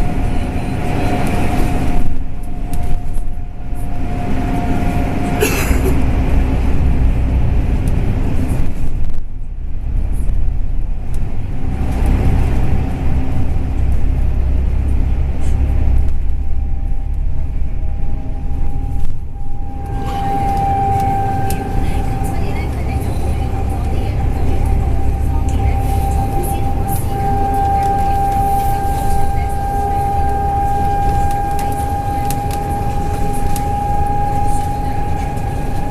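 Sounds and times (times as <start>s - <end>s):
bus engine and road rumble: 0.0s - 35.9s
thin whine: 10.1s - 35.9s.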